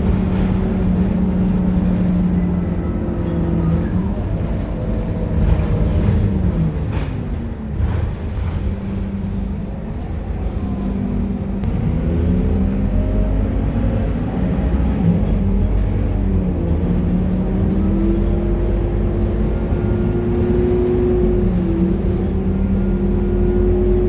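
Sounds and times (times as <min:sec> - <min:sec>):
bus diesel engine running: 0:00.0 - 0:24.0.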